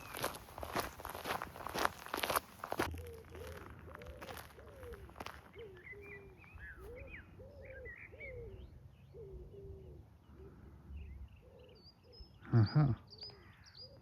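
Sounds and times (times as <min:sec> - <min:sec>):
pigeons cooing: 0:02.7 - 0:14.0
small bird chirping: 0:03.0 - 0:09.8.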